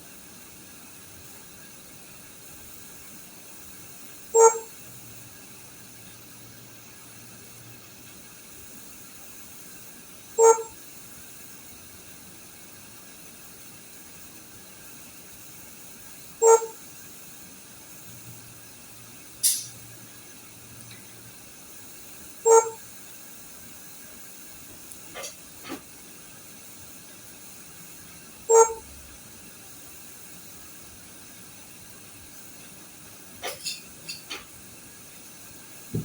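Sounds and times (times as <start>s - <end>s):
short electronic beep: 4.4s - 4.7s, 22.5s - 22.8s.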